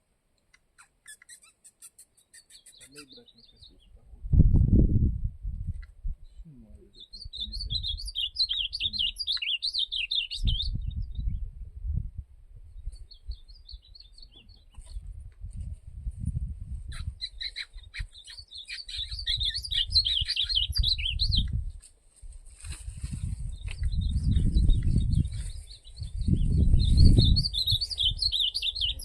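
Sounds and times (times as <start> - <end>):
bird singing warbled song: 0.8 - 4.7, 5.8 - 11.6, 12.7 - 15.2, 16.7 - 21.7, 23.1 - 29.0
low rumble on microphone: 3.7 - 8.1, 10.4 - 17.2, 19.2 - 29.0.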